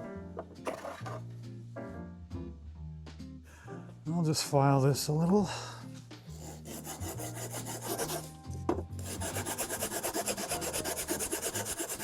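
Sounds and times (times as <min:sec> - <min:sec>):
hand file rasping: 0:06.3 - 0:08.4, 0:09.0 - 0:12.0.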